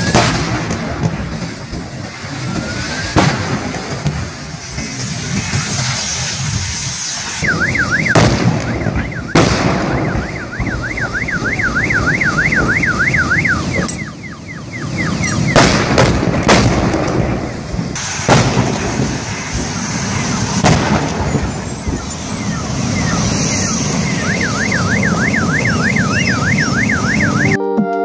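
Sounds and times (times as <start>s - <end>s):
sharp bangs from burning wreck: 0.0s - 6.6s, 7.4s - 13.9s, 14.9s - 26.8s
burning vehicle noise: 0.0s - 27.6s
car alarm warbling: 7.4s - 15.7s, 21.3s - 27.6s.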